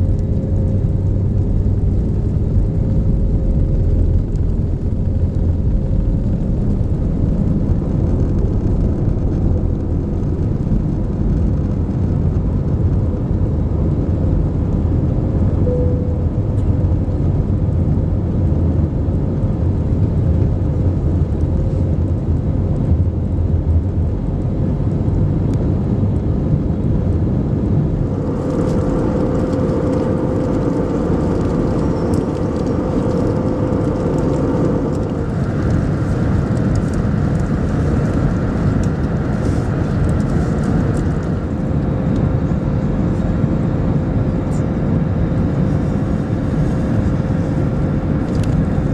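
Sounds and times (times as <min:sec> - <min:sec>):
airplane cabin engine rumble: 0:00.0 - 0:48.9
faint steady hum: 0:14.1 - 0:19.0.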